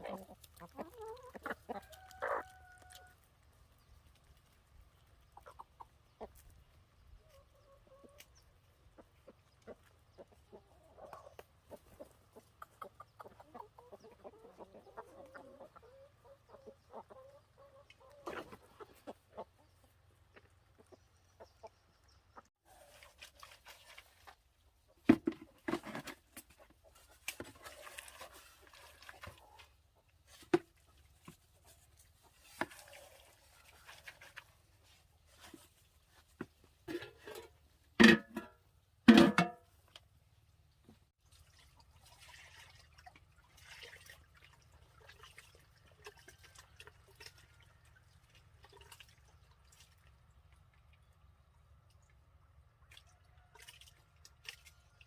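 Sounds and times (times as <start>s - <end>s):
chickens clucking: 0.0s - 23.0s, 24.8s - 38.5s.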